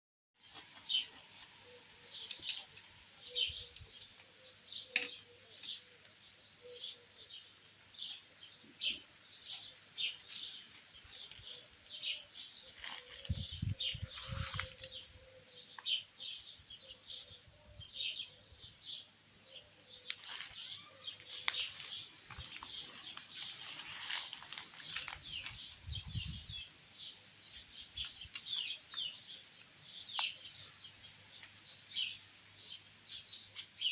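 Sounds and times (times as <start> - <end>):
small birds chirping: 0.4 - 33.9.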